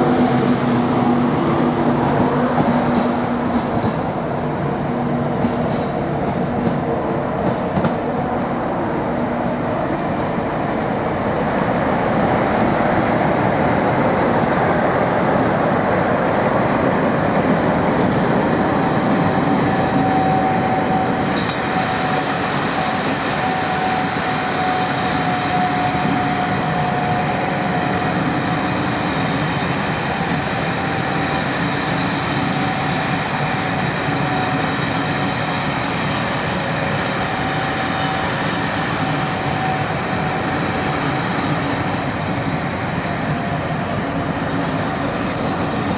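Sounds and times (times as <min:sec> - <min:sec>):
train running past on track: 0:00.0 - 0:45.9.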